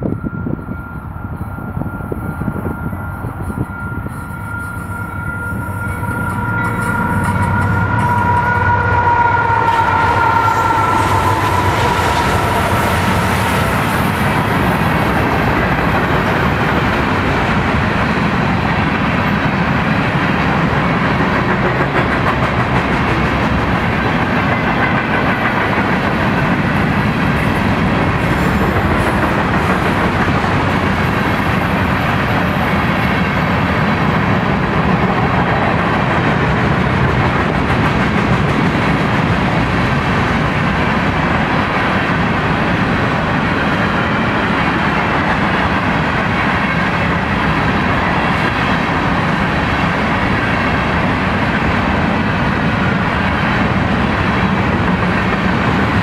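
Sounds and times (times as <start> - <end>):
two-tone locomotive horn: 0.0 - 15.5
freight train wheel and rail noise: 0.0 - 56.0.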